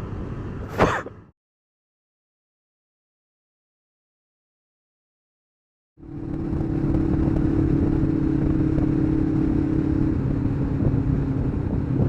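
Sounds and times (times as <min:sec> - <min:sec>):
motorcycle engine running: 0:06.0 - 0:12.0.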